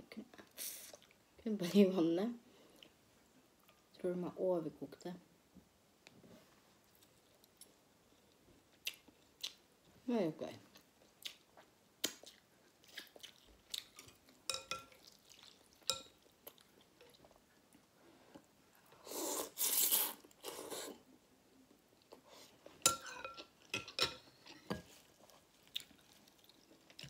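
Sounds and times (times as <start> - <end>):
soft chewing: 0.4 - 1.2, 6.0 - 10.0, 10.7 - 27.0
utensils clinking against bowl: 14.5 - 15.0.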